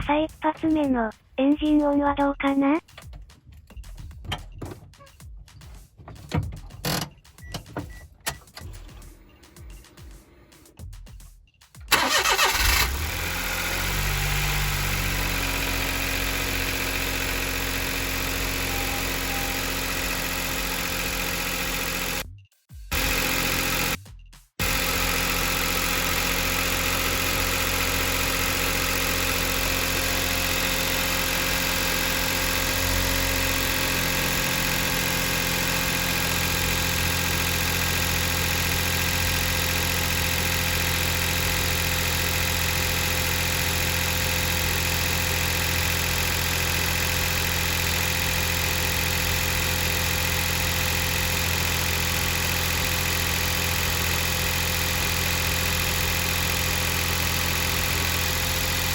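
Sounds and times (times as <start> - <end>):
car engine idling: 11.9 - 22.2, 22.9 - 24.0, 24.6 - 58.9.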